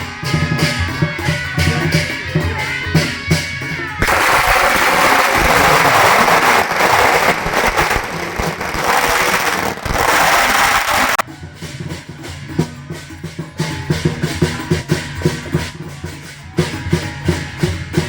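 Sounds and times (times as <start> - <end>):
band music with drums: 0.0 - 18.0
firecrackers crackling: 4.0 - 11.2.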